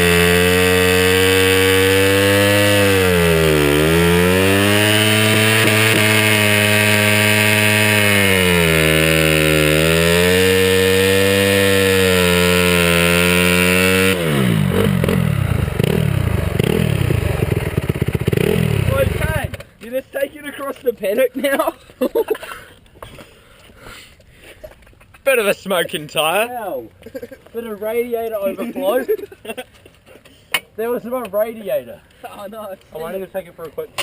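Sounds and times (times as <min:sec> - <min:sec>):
dirt bike engine revving: 0:00.0 - 0:19.6.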